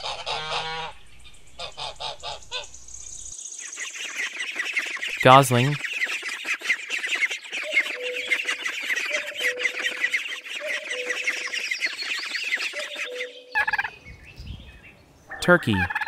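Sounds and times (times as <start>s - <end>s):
goslings peeping: 0.0s - 2.8s, 3.8s - 14.1s, 15.3s - 16.0s
harsh bird call: 4.9s - 6.1s.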